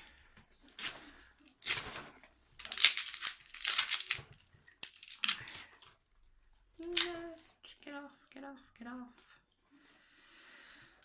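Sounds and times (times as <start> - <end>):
packaging crinkling and crackling: 0.8 - 5.8.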